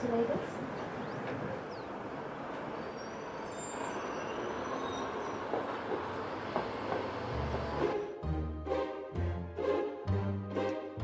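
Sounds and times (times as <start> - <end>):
faint high whistling glides: 2.6 - 6.6
music with low bass notes: 7.4 - 11.0.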